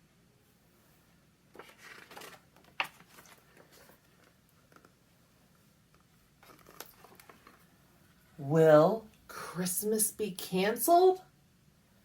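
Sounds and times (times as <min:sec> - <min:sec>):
book page rustling: 0:01.5 - 0:05.0, 0:05.9 - 0:07.7.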